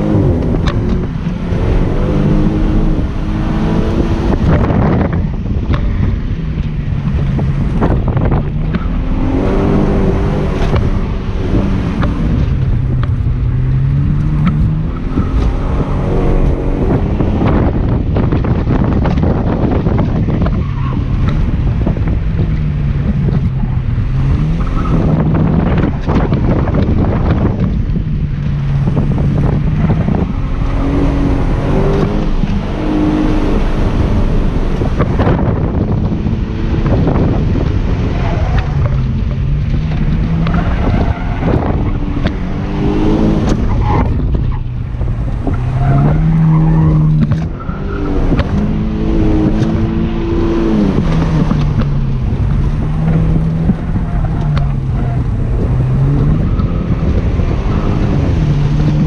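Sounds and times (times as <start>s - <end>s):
car engine revving: 0.0s - 59.0s
road and wind noise: 0.0s - 59.0s.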